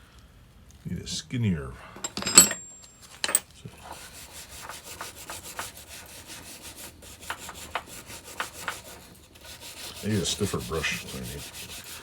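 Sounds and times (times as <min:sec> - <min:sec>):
brush scrubbing metal: 0:03.8 - 0:12.0.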